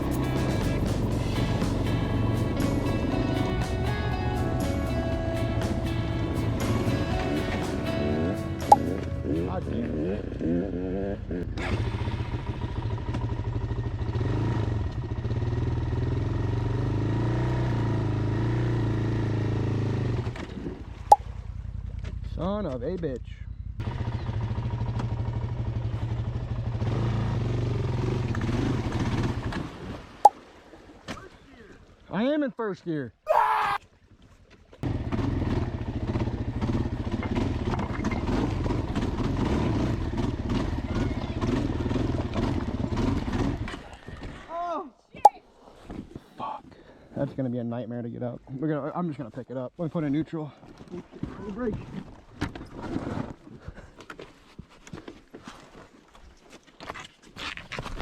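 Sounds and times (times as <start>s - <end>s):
dirt bike engine running: 0.0s - 20.7s, 21.4s - 29.6s, 34.8s - 43.9s.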